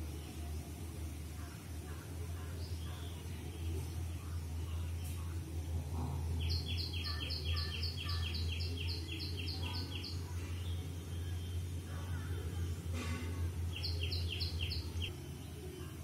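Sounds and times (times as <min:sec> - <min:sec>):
steady low hum: 0:00.0 - 0:16.0
bird chirping: 0:06.0 - 0:16.0.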